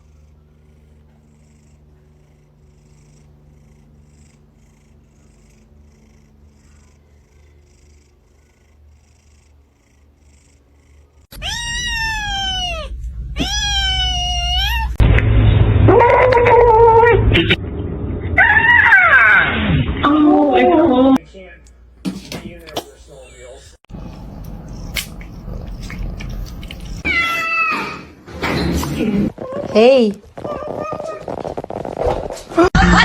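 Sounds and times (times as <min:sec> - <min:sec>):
cat purring: 0:00.0 - 0:11.3, 0:23.9 - 0:27.0, 0:29.0 - 0:32.6
cat meowing: 0:11.3 - 0:15.0, 0:27.0 - 0:28.1
low cat cry: 0:11.3 - 0:15.0, 0:27.0 - 0:28.1.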